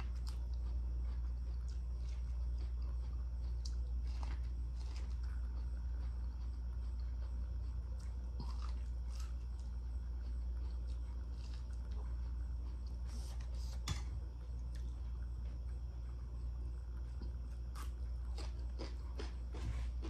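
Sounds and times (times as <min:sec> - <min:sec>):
wet chewing: 0:00.0 - 0:16.3
crunchy corn bites: 0:00.0 - 0:20.0
steady low hum: 0:00.0 - 0:20.0.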